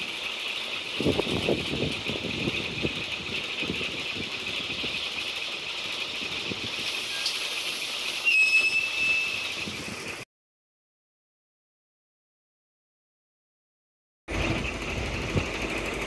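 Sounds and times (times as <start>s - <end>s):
steady high-pitched whine: 0.0s - 10.2s
train wheels clattering on rails: 0.0s - 10.2s, 14.3s - 16.0s.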